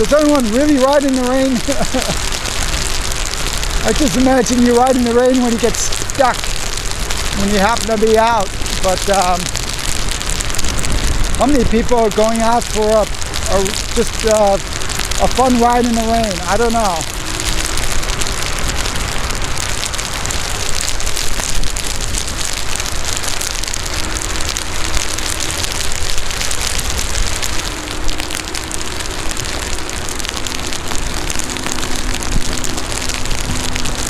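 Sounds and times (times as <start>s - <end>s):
heavy rain pattering on microphone: 0.0s - 34.0s
low wind rumble: 0.0s - 34.0s
faint steady hum: 12.1s - 34.0s.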